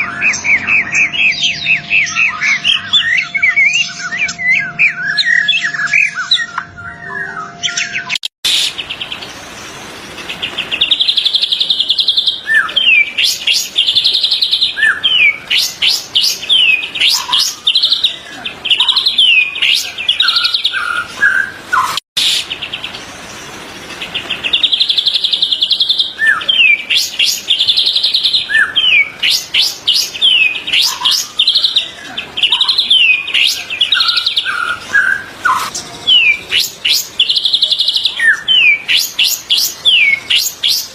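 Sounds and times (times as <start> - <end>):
bird song with trills and whistles: 0.0 - 40.9.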